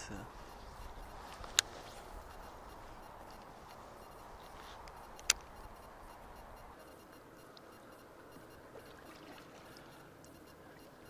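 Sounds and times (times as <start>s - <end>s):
faint river water: 0.0s - 11.0s
sharp click: 4.8s - 5.6s.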